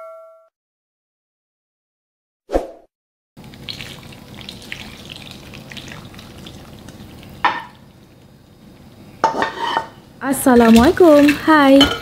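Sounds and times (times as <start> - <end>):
food sizzling in hot oil: 3.5 - 12.0.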